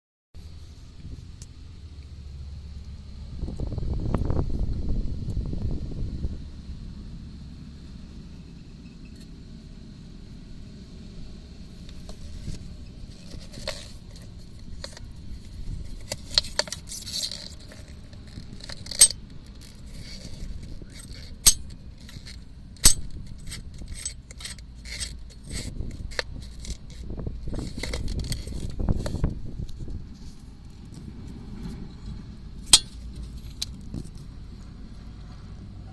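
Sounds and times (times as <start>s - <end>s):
low rumble: 0.4s - 16.6s.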